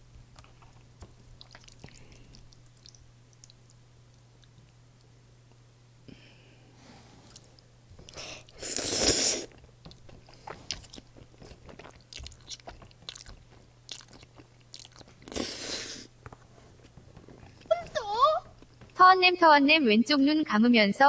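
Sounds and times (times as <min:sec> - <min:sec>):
chewing with mouth clicks: 0:00.3 - 0:05.1, 0:07.3 - 0:19.0.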